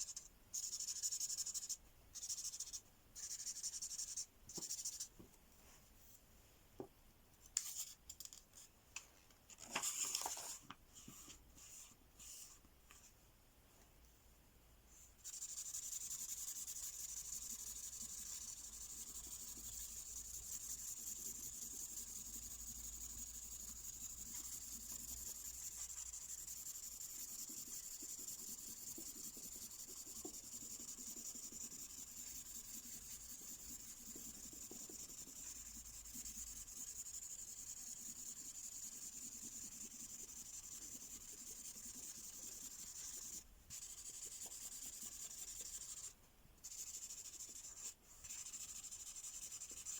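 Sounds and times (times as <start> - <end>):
pen scratching on paper: 15.2 - 49.9.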